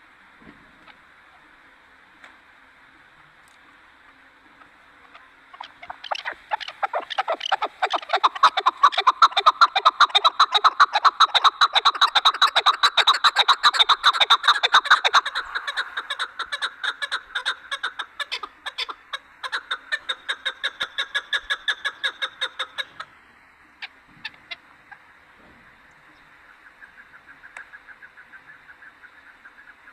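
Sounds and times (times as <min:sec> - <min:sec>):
partridge calling chuck notes: 0:05.0 - 0:23.1.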